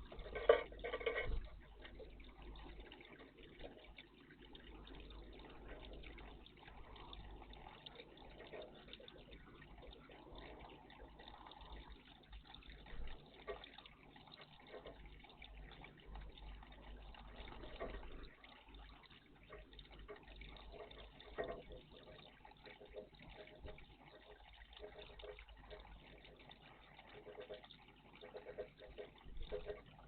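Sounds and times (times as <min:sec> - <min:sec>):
water trickling in a bird bath: 0:00.0 - 0:30.0.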